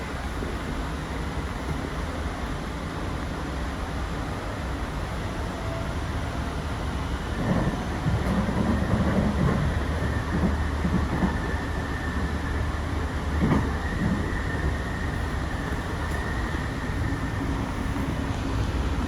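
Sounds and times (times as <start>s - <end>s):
train interior rumble: 0.0s - 19.0s
wheels knocking and clattering: 7.4s - 11.6s.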